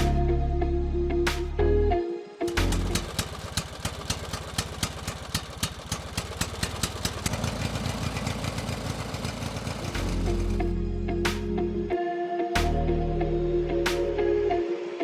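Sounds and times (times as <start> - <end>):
regular clicking: 2.5 - 7.5
small motor-driven machine running: 2.5 - 10.7.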